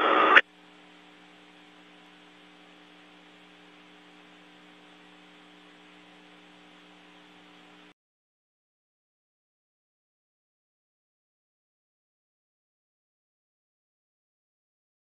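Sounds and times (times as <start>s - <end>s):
radio hum with hiss: 0.0s - 7.9s.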